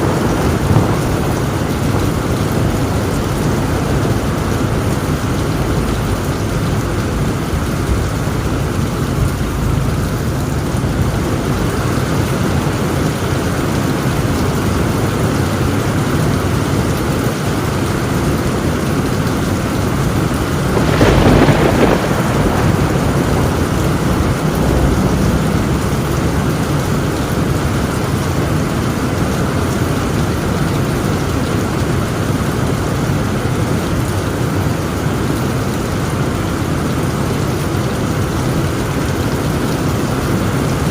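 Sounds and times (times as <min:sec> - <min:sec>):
thunderclap: 0:00.0 - 0:13.2, 0:18.7 - 0:29.5
rain drumming on a tin roof: 0:00.0 - 0:40.9.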